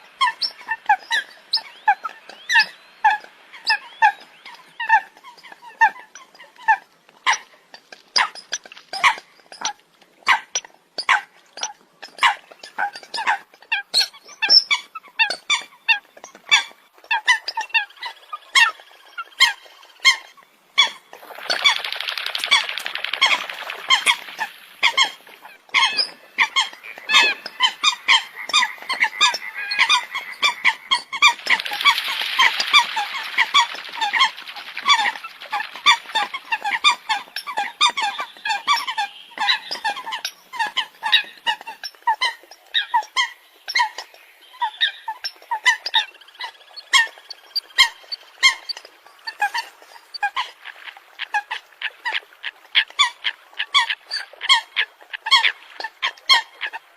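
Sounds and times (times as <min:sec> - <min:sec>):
birds honking calls: 0:21.2 - 0:41.5.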